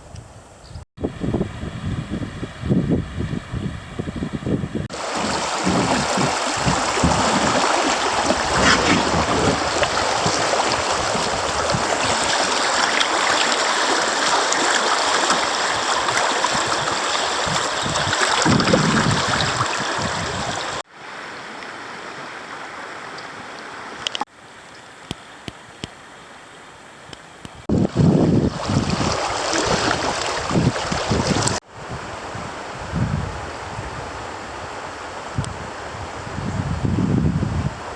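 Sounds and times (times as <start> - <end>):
wind buffeting microphone: 1.0 - 13.0, 15.6 - 20.8, 27.5 - 37.9
creek water rushing: 4.9 - 24.6, 27.7 - 32.8.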